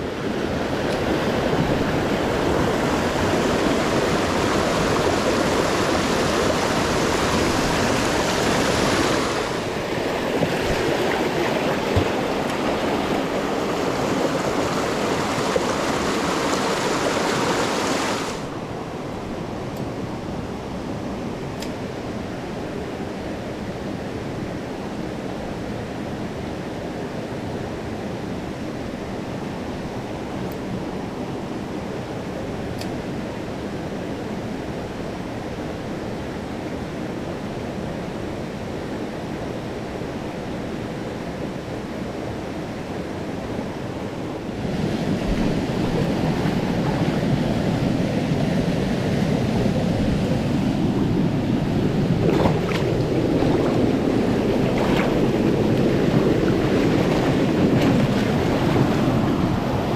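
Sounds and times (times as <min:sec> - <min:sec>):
stream rushing over rocks: 0:00.0 - 0:18.6, 0:44.4 - 0:59.9.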